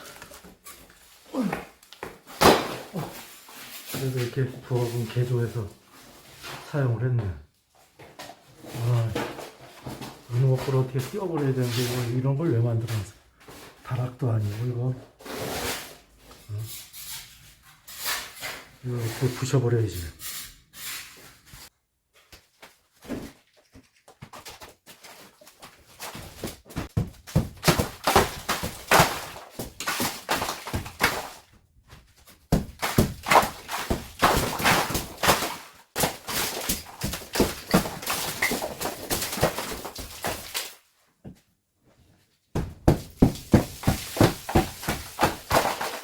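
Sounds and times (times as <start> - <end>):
demolition knocks and thuds: 26.0 - 40.8, 42.6 - 46.0.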